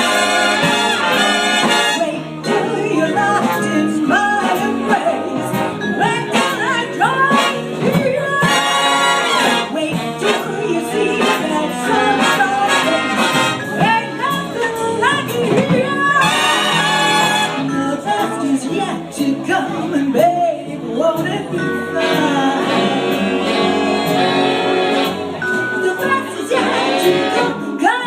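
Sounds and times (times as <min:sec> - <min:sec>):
brass ensemble chords: 0:00.0 - 0:14.0, 0:16.0 - 0:17.8, 0:22.0 - 0:27.8
big band swing music: 0:00.0 - 0:28.0.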